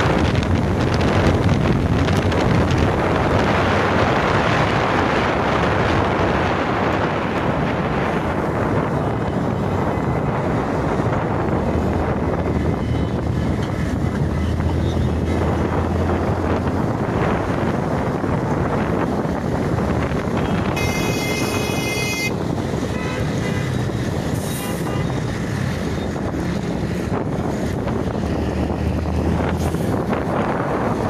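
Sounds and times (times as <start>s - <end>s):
road and wind noise: 0.0s - 31.0s
car horn: 20.4s - 23.8s, 24.5s - 25.2s.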